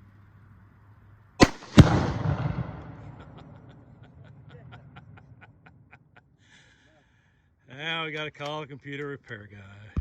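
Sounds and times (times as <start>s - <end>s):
loud explosion bang: 1.4s - 4.0s.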